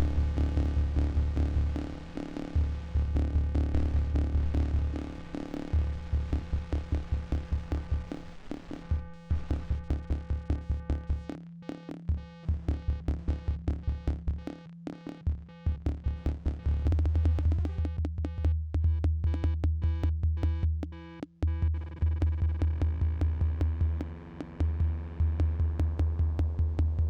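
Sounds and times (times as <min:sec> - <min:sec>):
low synth bass line: 0:00.0 - 0:10.8.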